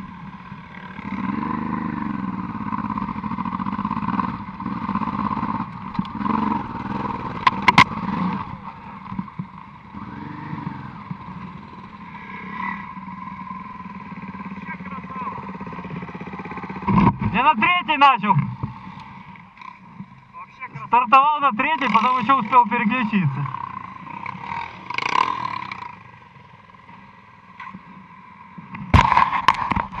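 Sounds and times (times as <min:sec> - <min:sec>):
motorcycle engine running: 0:00.0 - 0:30.0
sharp knocks: 0:28.9 - 0:30.0.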